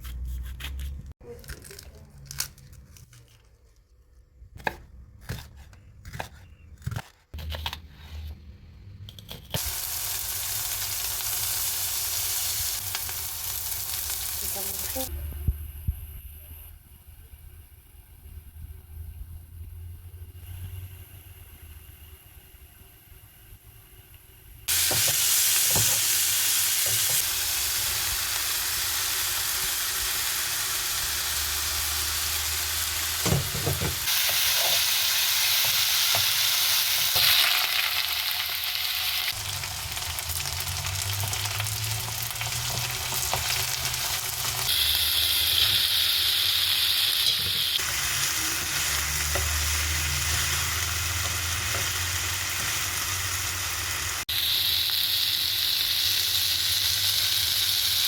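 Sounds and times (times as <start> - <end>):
food sizzling in a pan: 9.6 - 58.0.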